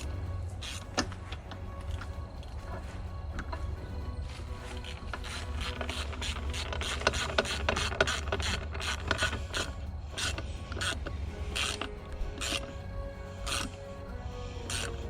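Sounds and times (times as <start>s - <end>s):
ratchet wrench clicking: 0.6s - 1.2s, 4.6s - 12.7s, 13.4s - 13.8s, 14.6s - 15.0s.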